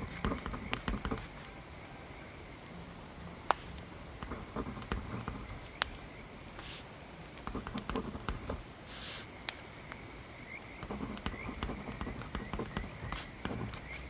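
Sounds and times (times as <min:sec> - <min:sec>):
wood fire crackling: 0:00.0 - 0:14.0
short soft hiss: 0:08.7 - 0:09.7.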